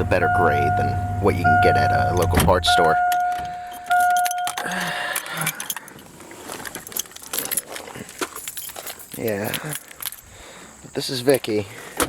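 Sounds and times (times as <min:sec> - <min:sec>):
car warning chime: 0:00.0 - 0:05.0
light clicks and rattles: 0:03.1 - 0:10.3.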